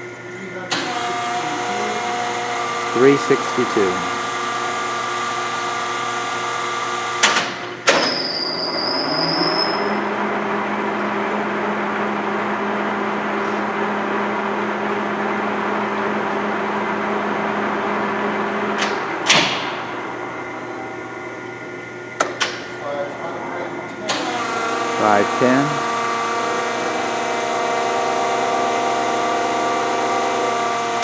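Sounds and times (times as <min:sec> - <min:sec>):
lathe gear whine: 0:00.0 - 0:16.8, 0:24.0 - 0:31.0.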